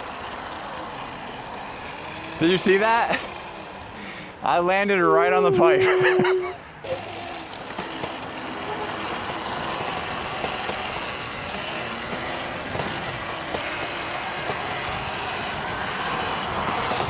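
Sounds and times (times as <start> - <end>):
tyres on dirt: 0.0 - 17.0
wind rush while riding: 9.0 - 17.0.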